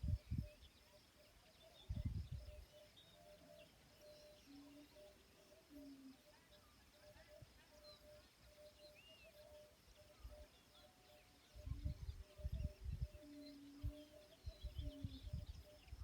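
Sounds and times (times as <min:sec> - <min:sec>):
distant bird chirps: 0:00.0 - 0:16.0.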